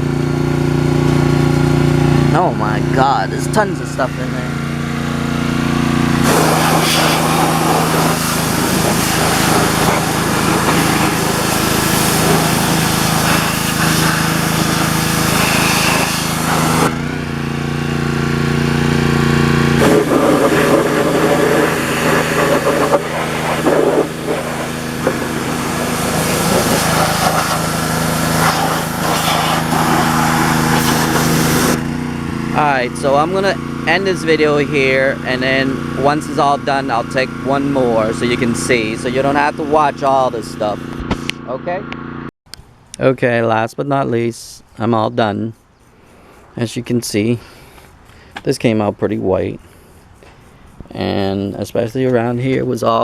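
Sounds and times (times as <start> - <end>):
pressure washer engine running: 0.0 - 42.3
water spray hissing: 5.1 - 31.9.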